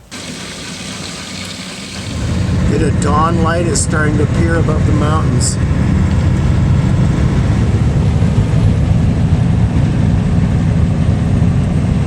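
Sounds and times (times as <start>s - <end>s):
diesel truck engine rumble: 0.0s - 12.0s
road noise: 0.0s - 12.0s.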